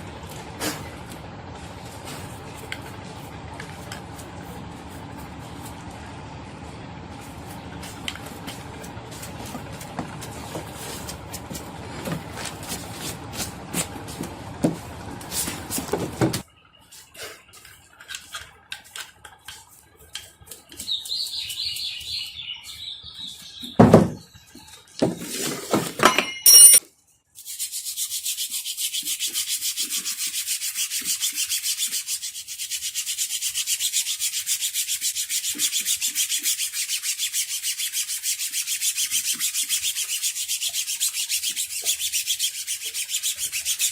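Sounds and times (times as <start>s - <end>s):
hand sanding rubbing strokes: 0.2s - 16.4s, 27.4s - 43.9s
metal parts clicking and knocking: 26.0s - 26.9s.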